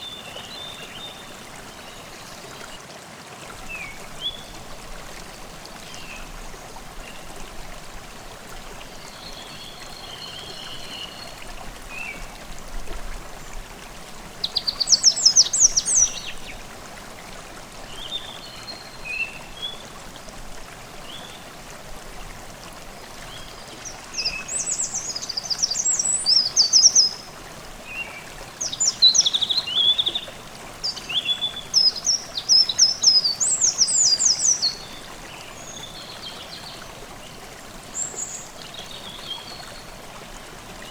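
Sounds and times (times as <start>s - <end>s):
stream babbling: 0.0s - 40.9s
songbirds singing: 14.2s - 16.7s, 23.2s - 40.0s.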